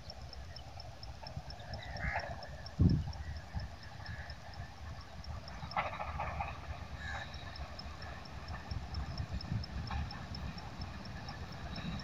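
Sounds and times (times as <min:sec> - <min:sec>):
distant train rumble: 0:00.0 - 0:12.0
insect-like ticking: 0:00.0 - 0:12.0.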